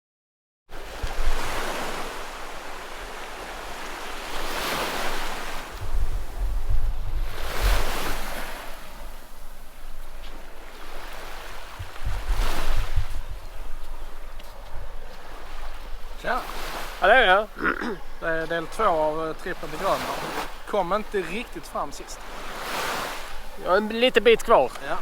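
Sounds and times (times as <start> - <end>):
sea waves washing ashore: 0.7 - 25.0
wind gusting across microphone: 0.7 - 25.0.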